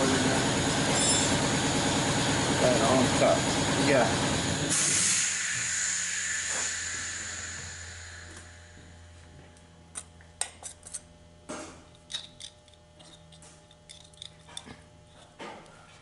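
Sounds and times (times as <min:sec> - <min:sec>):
steady low hum: 0:00.0 - 0:16.0
small metal parts clinking: 0:11.9 - 0:15.2.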